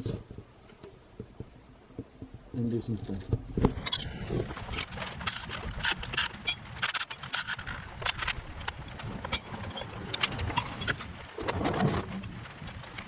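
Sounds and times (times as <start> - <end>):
metal tools clinking and clattering: 3.8 - 8.4.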